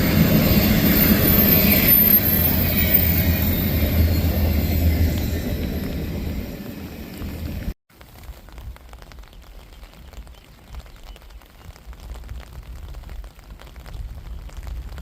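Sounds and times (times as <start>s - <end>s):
freight train rumbling: 0.0s - 7.8s
crackling hiss with clicks: 7.9s - 15.0s.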